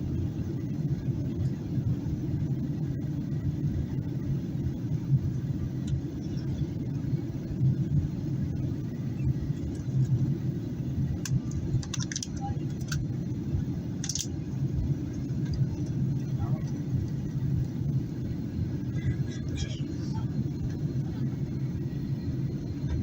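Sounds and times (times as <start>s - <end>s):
airplane cabin rumble: 0.0s - 23.0s.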